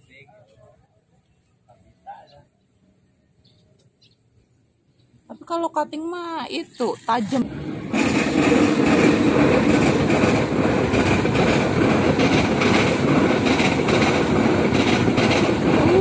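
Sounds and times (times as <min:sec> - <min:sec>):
train wheels rumbling on rails: 0:06.9 - 0:16.0.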